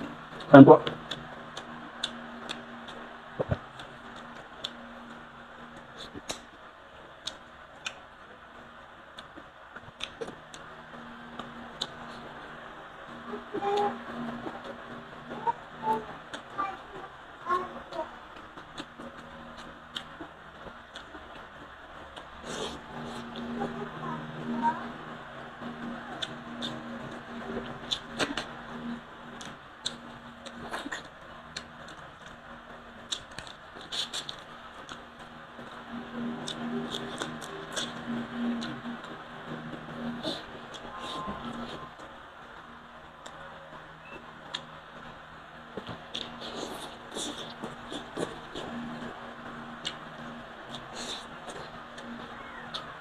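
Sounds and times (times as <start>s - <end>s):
person chewing food: 33.1s - 35.0s, 45.8s - 48.8s.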